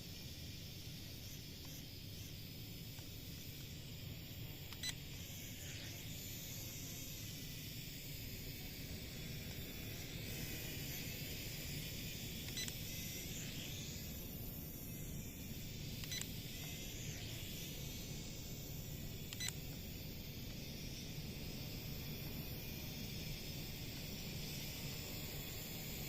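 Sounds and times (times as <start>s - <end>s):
toy drone propellers whining: 0.0s - 26.0s.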